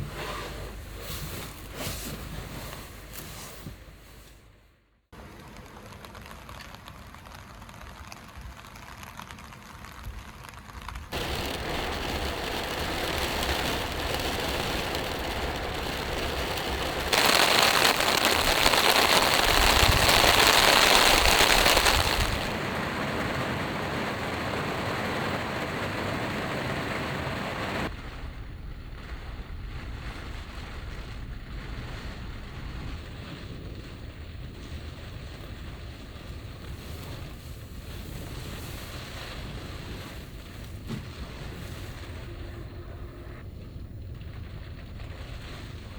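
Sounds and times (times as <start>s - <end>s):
heavy rain pounding on vehicle: 11.2s - 27.9s.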